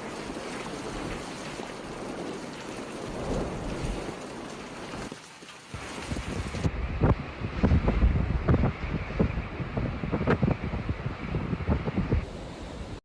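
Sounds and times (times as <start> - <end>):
hail falling: 0.0 - 6.7.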